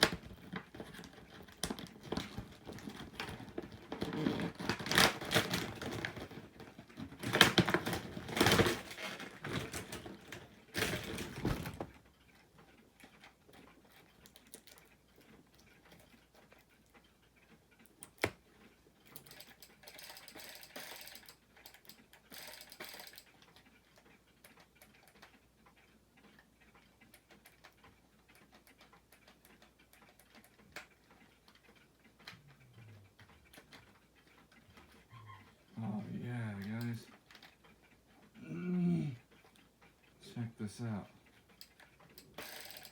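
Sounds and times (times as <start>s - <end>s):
packaging rustling and crinkling: 0.0s - 11.9s.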